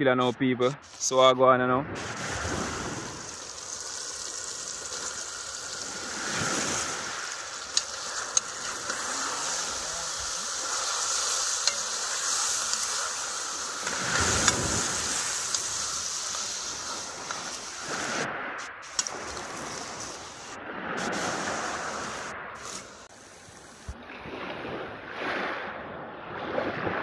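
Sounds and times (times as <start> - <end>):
fish sizzling in hot oil: 2.0 - 23.1.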